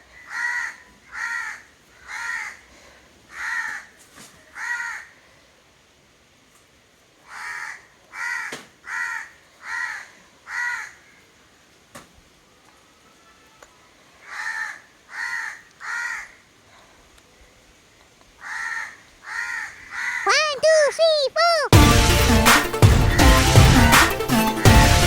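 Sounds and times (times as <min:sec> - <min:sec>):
crow cawing: 0:00.2 - 0:02.6, 0:03.3 - 0:03.9, 0:04.6 - 0:05.2, 0:07.3 - 0:11.2, 0:14.2 - 0:16.4, 0:18.4 - 0:20.4.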